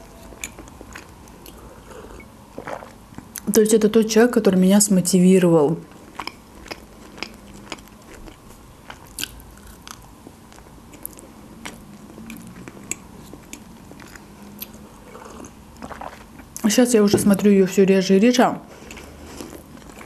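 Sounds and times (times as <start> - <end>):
chewing crunchy snack: 0.2 - 3.4, 5.8 - 16.6, 18.8 - 20.0.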